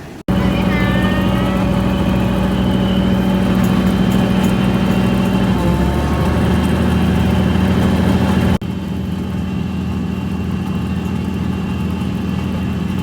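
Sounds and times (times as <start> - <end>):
train diesel engine humming: 0.0 - 9.8.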